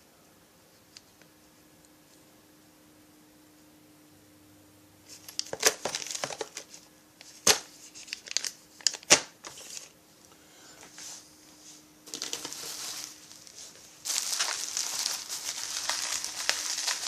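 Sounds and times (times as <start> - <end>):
plastic bags crinkling: 5.1 - 10.0, 12.1 - 17.0.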